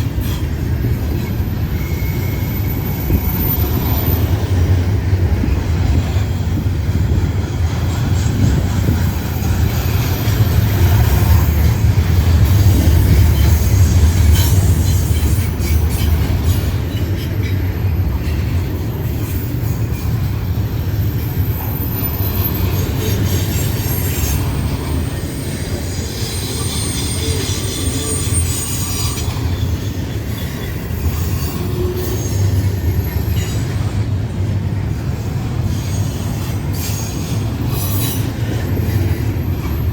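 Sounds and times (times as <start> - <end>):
train wheels rumbling on rail: 0.0 - 39.9
high-pitched wheel squeal: 1.2 - 4.4, 21.3 - 33.6.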